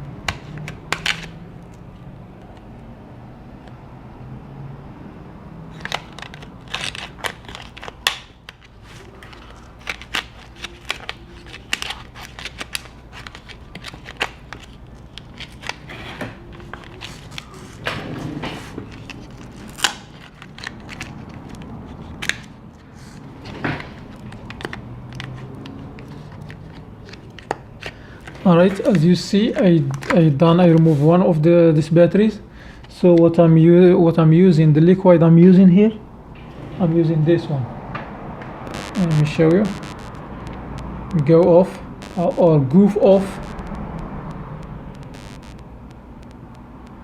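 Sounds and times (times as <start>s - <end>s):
plastic card prying cracks: 0.3s - 1.3s, 5.8s - 15.8s.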